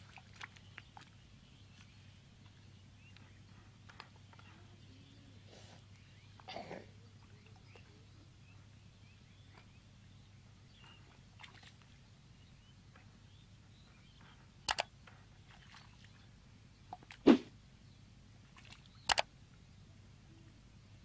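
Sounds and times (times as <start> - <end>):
steady low hum: 0.0 - 21.0
sharp double click: 14.7 - 14.9, 19.1 - 19.3.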